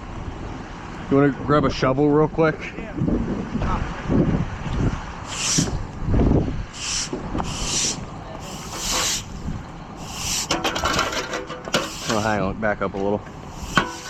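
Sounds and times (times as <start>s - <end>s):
broom sweeping broken glass: 7.6s - 9.3s, 10.0s - 12.4s, 13.5s - 14.0s.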